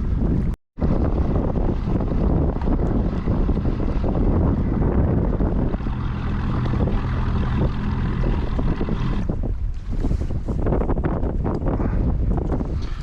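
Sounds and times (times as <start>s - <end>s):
wind buffeting microphone: 0.0s - 13.0s
motor engine drone: 0.8s - 9.5s.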